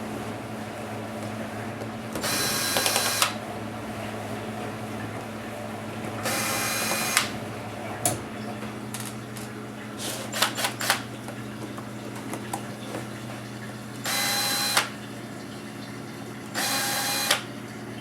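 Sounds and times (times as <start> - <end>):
electric screwdriver whirring: 2.2 - 3.4, 6.3 - 7.3, 10.3 - 11.0, 14.1 - 14.9, 16.6 - 17.5.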